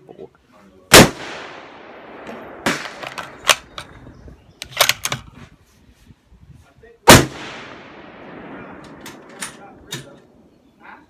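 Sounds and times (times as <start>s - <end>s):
rifle shot with echo: 0.9s - 3.9s, 7.1s - 10.5s
rifle bolt clicking: 4.6s - 5.3s.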